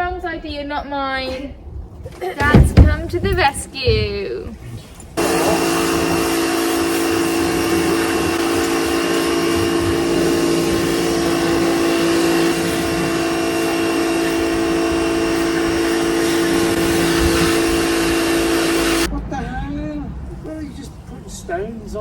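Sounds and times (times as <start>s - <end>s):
pressure washer running: 5.2s - 19.1s.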